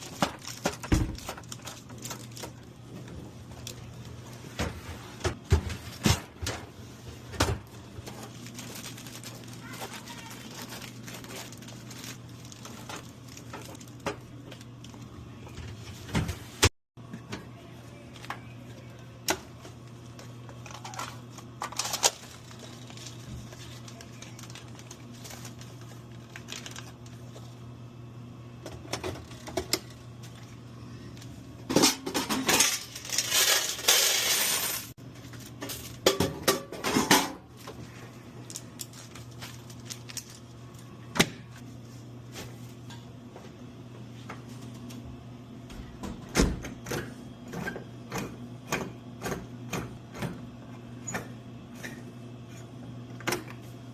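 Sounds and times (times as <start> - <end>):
packaging rustle: 0.0 - 2.7, 8.0 - 14.0, 20.6 - 27.5, 37.8 - 40.9.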